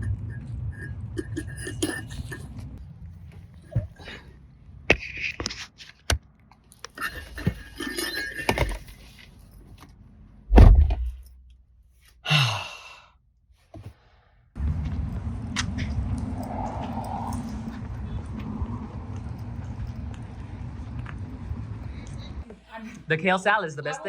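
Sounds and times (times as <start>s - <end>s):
low hum: 0.0s - 5.0s, 14.6s - 22.5s
heavy thump: 10.5s - 11.3s.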